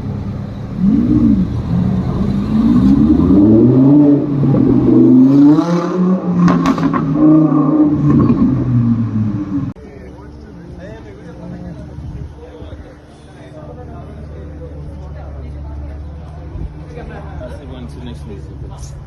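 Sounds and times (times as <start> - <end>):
car engine revving: 0.0 - 9.8
exhaust cracks: 0.7 - 9.8.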